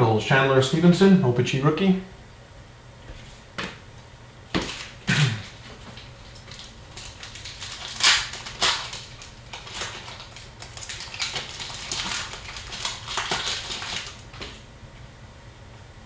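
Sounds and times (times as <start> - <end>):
card pack wrappers ripping: 4.6 - 14.6.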